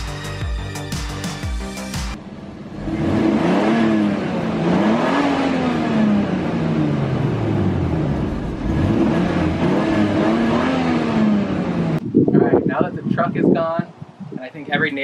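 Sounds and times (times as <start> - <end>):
car engine revving: 1.2 - 12.2.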